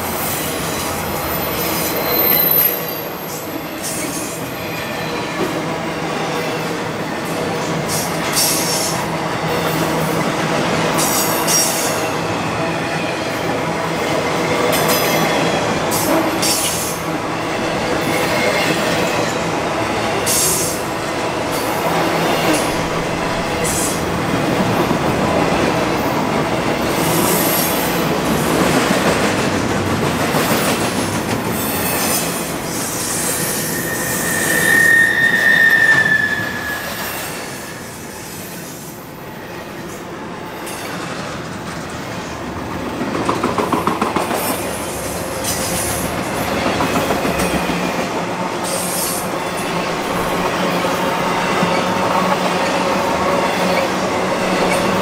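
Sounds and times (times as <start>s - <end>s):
freight train rolling past: 0.0s - 55.0s
high wheel squeal: 1.3s - 4.1s, 31.6s - 38.7s
train cars clanking: 7.5s - 39.0s, 40.6s - 55.0s.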